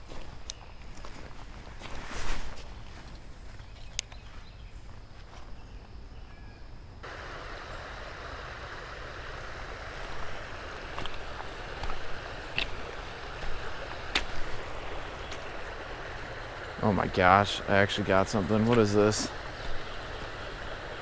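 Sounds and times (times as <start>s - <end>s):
creek water rushing: 7.0s - 21.0s.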